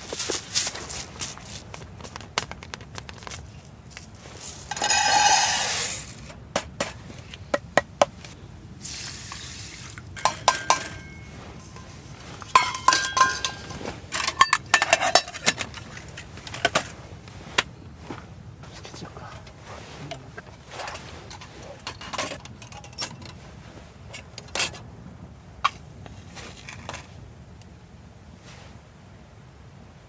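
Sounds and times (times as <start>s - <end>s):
metal cookware clinking: 10.1s - 16.7s.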